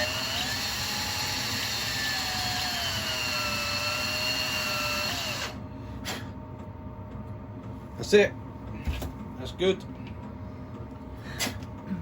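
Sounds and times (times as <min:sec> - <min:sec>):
electric drill whining: 0:00.0 - 0:05.6.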